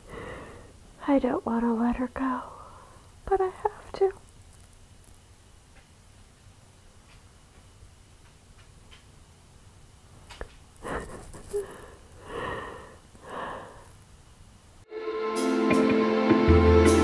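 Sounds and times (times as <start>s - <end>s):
woman crying and sniffling: 10.8s - 13.8s
shaky breaths: 10.8s - 14.0s
soft music: 14.9s - 17.0s.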